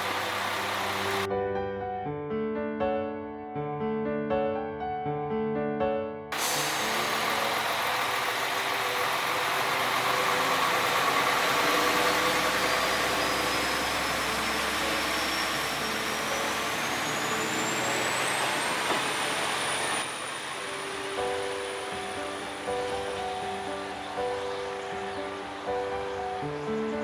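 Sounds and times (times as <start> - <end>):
diesel railcar engine: 0.0 - 1.3, 6.3 - 27.0
thin high whine: 6.4 - 26.2.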